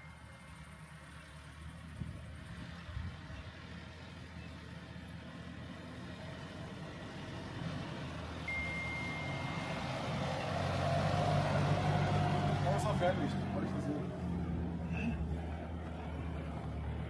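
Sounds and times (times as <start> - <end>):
vehicle engine running: 0.0 - 17.0
short high beep: 8.5 - 9.8.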